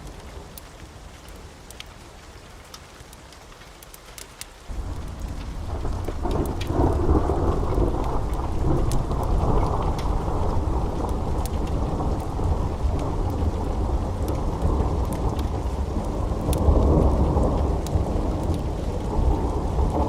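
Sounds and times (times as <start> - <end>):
wood fire crackling: 0.0 - 20.0
deep rumble: 4.7 - 20.0.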